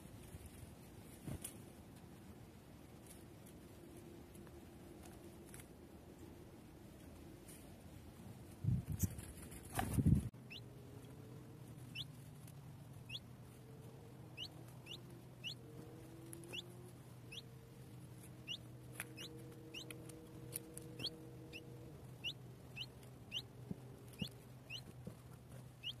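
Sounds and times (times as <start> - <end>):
faint low steady hum: 0.0 - 26.0
small bird calling: 11.8 - 12.2, 13.0 - 13.6, 14.3 - 17.6, 18.3 - 24.9, 25.8 - 26.0.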